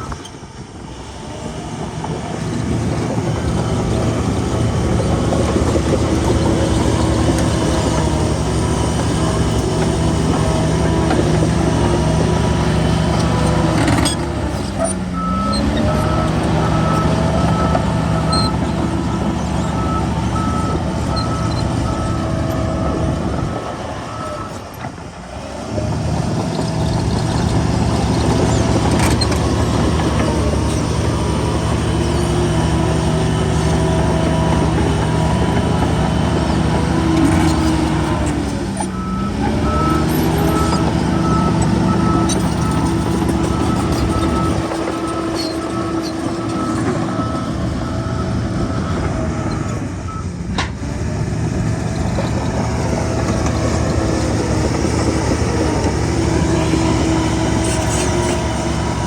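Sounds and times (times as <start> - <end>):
bulldozer diesel engine: 0.0 - 59.0
reversing alarm beeping: 38.9 - 50.4.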